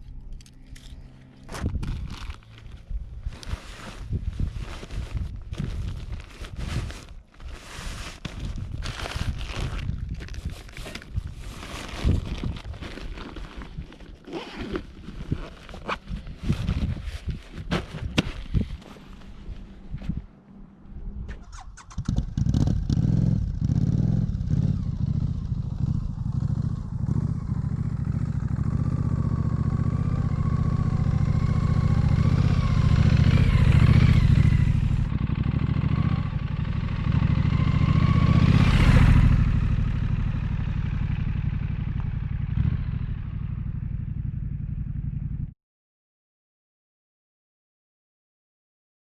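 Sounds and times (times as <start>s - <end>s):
motorcycle engine revving: 21.3s - 45.5s.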